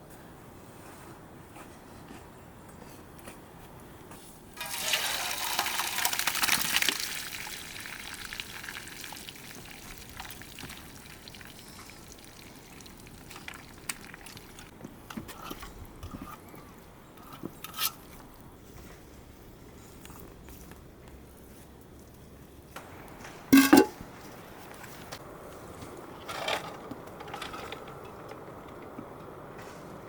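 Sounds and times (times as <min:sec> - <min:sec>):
liquid pouring: 0:04.6 - 0:14.7, 0:23.6 - 0:23.9
liquid trickling: 0:04.6 - 0:14.7.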